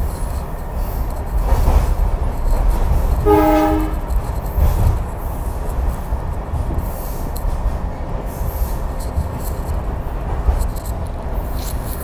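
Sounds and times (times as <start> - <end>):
train rumbling and rattling: 0.0 - 12.0
locomotive horn toot: 3.2 - 4.2.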